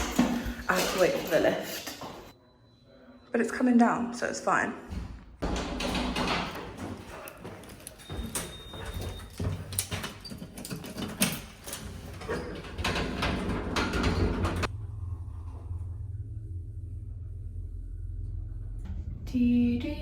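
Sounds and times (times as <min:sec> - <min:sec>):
knocks and clatters: 0:04.9 - 0:14.7
elevator doors sliding: 0:05.4 - 0:14.7
steady low hum: 0:14.6 - 0:20.0.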